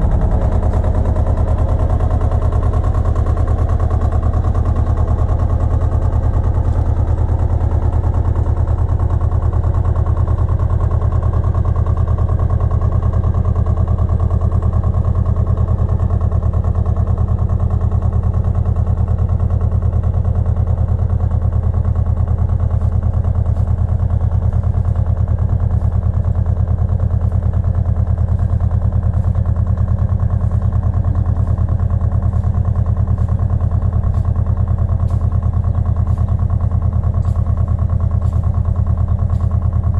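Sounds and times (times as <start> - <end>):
tractor engine running: 0.0 - 39.9
faint regular ticks: 29.1 - 39.9.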